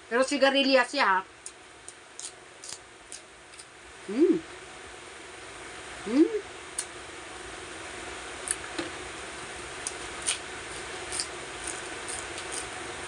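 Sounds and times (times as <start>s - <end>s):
steady background hiss: 0.0s - 13.0s
bean pod crunching when bitten: 2.2s - 3.7s, 9.8s - 12.7s.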